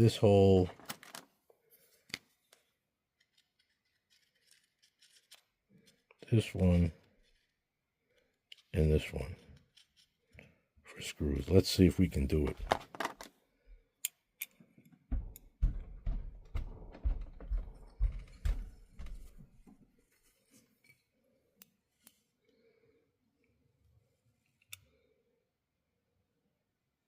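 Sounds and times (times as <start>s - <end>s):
small metal parts clicking: 3.2s - 6.0s.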